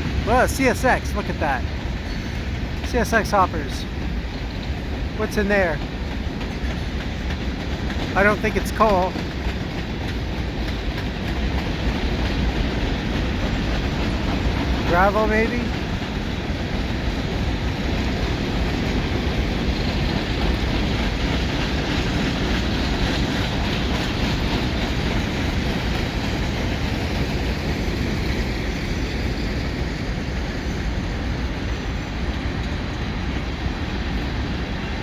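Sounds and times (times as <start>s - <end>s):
freight train wheels rumbling: 0.0s - 35.0s.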